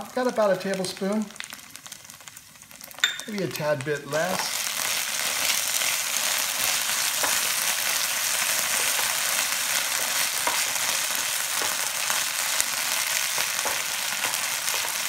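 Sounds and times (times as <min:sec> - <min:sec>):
food sizzling in a frying pan: 0:00.0 - 0:15.0
wooden spatula scraping a pan: 0:04.2 - 0:15.0.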